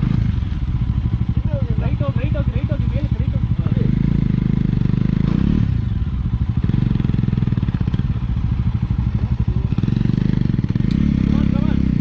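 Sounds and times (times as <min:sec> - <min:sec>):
motorcycle engine chugging: 0:00.0 - 0:12.0.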